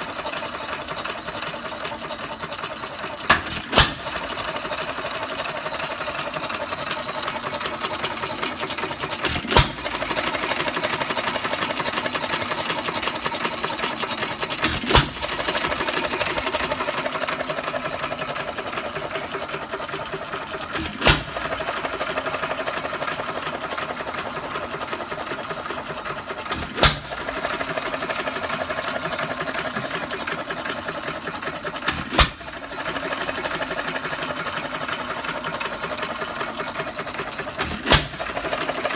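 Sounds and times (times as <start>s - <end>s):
engine mechanical clatter: 0.0s - 38.9s
engine firing bang: 3.3s - 4.4s, 9.2s - 10.0s, 20.8s - 21.6s, 26.5s - 27.3s, 37.6s - 38.4s.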